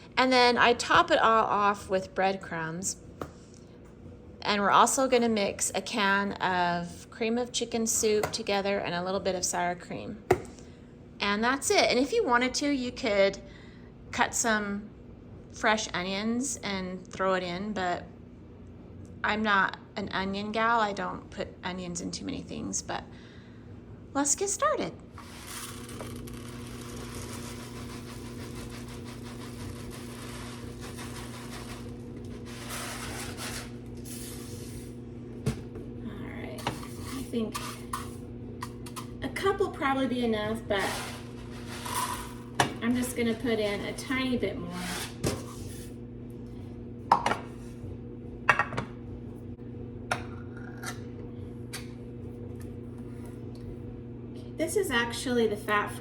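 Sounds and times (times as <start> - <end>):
small electric motor humming: 25.2 - 33.8.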